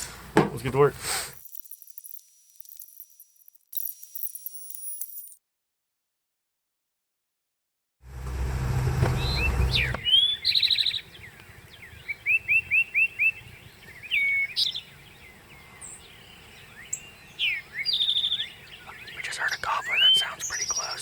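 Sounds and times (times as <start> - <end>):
low rumble: 8.1 - 10.0
songbirds singing: 9.1 - 21.0.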